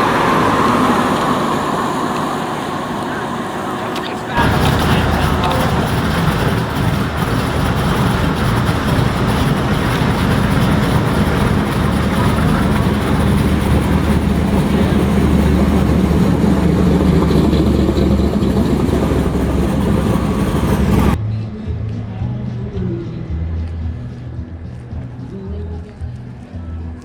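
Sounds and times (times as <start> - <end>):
car engine idling: 0.0 - 21.2.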